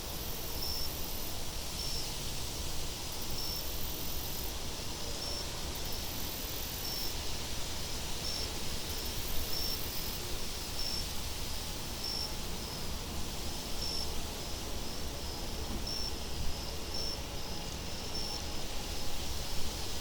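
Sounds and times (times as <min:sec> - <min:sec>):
crickets chirping: 0:00.2 - 0:20.0.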